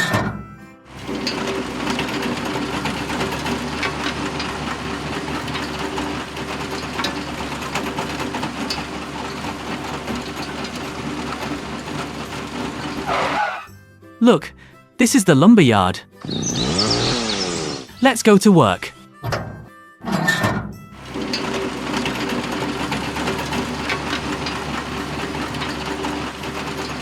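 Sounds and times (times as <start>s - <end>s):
small motor whirring rattle: 0.9s - 13.7s, 16.2s - 17.9s, 21.0s - 27.0s.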